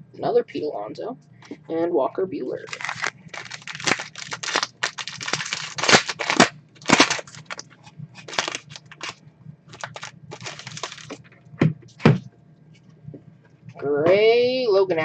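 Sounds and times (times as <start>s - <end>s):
cards rustling and scraping: 2.6s - 11.2s.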